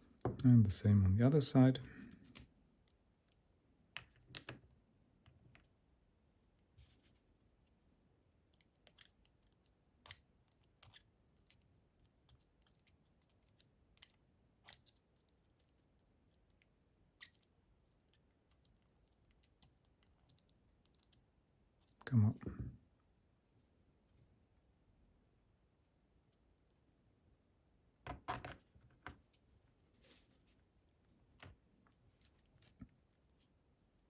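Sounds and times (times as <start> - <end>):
small metal lock parts clicking: 12.2 - 15.8.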